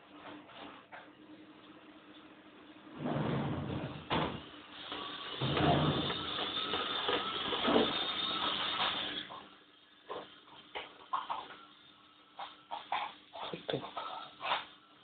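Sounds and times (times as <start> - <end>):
toy electric motor whirring: 4.7 - 9.6.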